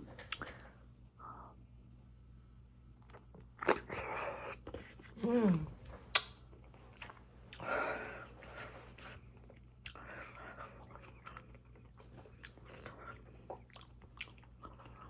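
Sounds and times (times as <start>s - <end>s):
person humming: 5.2s - 5.8s
wet chewing and smacking: 8.9s - 15.0s.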